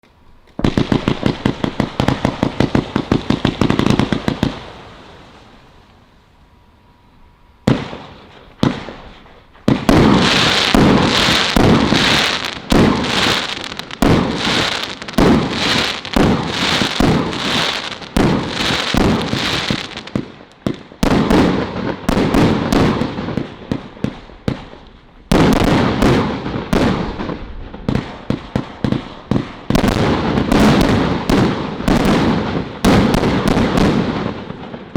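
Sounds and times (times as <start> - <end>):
firework bursts: 0.0 - 34.9
firework cake firing shots: 7.7 - 24.7, 25.3 - 34.9.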